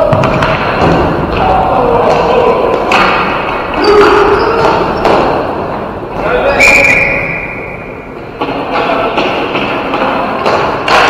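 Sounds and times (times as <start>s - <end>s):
hockey sticks and ball knocking: 0.0s - 5.5s, 8.4s - 11.0s
players calling out: 0.0s - 10.4s.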